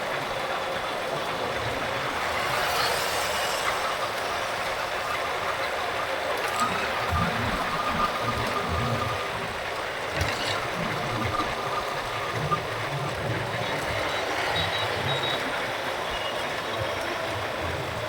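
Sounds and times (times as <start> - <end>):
road and traffic noise: 0.0 - 18.0
faint high-pitched beeps: 6.5 - 17.3.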